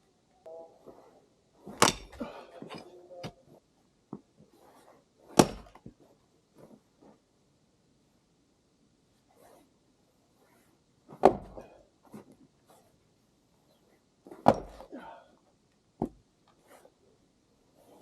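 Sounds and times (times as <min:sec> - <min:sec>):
heavy wooden thunks: 0:01.6 - 0:03.4, 0:05.4 - 0:05.9, 0:11.1 - 0:11.8, 0:14.3 - 0:15.2, 0:16.0 - 0:16.2
firewood knocking and clattering: 0:01.7 - 0:03.4, 0:14.4 - 0:14.9.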